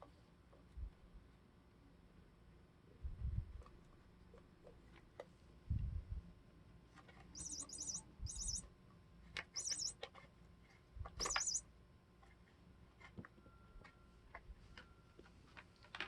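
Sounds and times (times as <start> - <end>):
toy bird chirping: 7.4 - 8.7, 9.5 - 10.0, 11.2 - 11.6.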